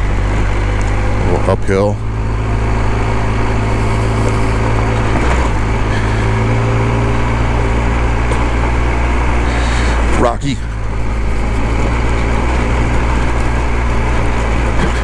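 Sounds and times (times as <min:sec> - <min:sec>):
motorcycle engine running under load: 0:00.0 - 0:15.0.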